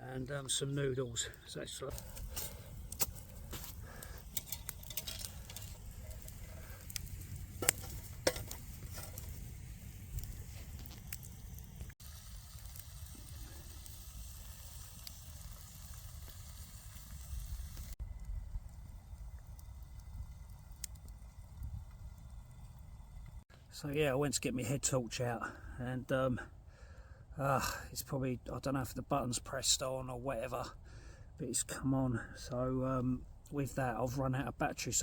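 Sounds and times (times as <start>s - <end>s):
sharp crackles and pops: 0.0s - 24.6s
food sizzling in a pot: 1.9s - 18.0s.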